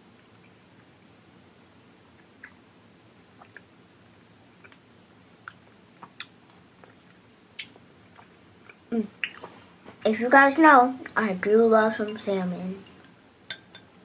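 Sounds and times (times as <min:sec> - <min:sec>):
child chewing quietly: 0:03.3 - 0:10.1
wet mouth clicks and smacks: 0:03.4 - 0:04.8, 0:05.4 - 0:09.6.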